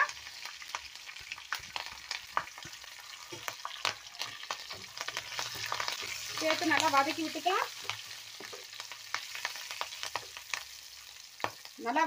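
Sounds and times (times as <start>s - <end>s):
spices sizzling in hot oil: 0.0s - 12.0s
wooden spatula stirring: 1.5s - 10.4s.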